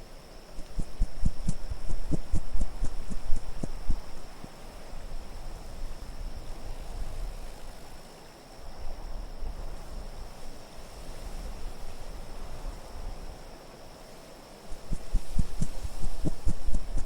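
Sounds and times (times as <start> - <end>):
wind blowing in gusts: 0.0 - 7.8, 14.7 - 17.0.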